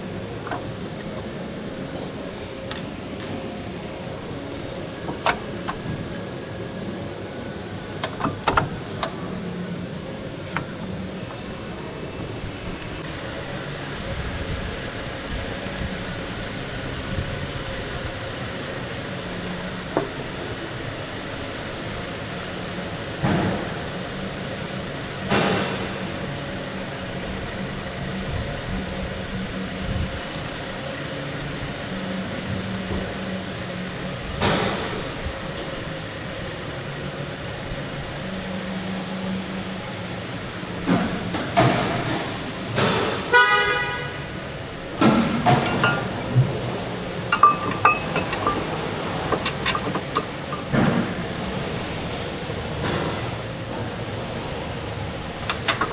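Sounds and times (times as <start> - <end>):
steady background hum: 0.0 - 55.9
metal clanks: 45.0 - 46.4, 47.3 - 51.3
knocks of metal tools: 47.3 - 48.7.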